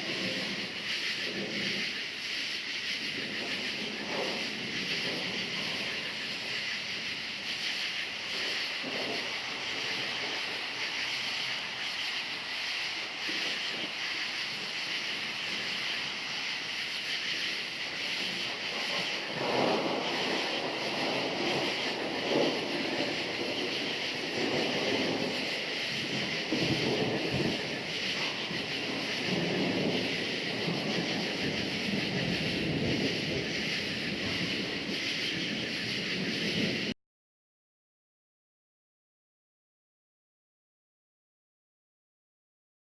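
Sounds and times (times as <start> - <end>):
crickets chirping: 0.0 - 36.9
distant thunder rumbling: 3.0 - 6.6, 8.3 - 36.9.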